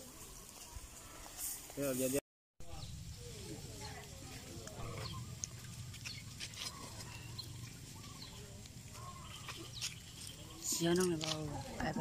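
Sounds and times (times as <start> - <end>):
low outdoor rumble: 2.6 - 12.0
faint bird calls: 2.7 - 11.1.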